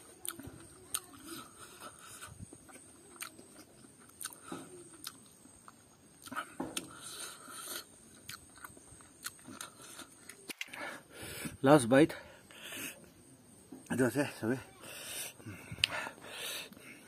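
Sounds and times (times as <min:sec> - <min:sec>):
man chewing food: 0:00.2 - 0:11.6
mouth clicks and smacks: 0:02.0 - 0:10.8.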